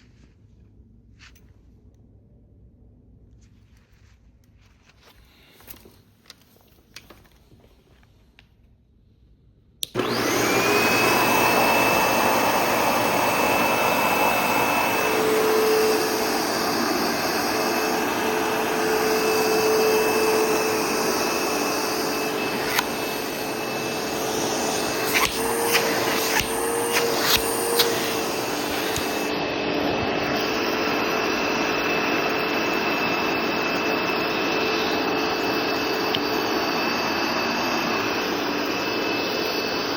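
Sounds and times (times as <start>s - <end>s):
vacuum cleaner motor whining: 9.8s - 39.9s.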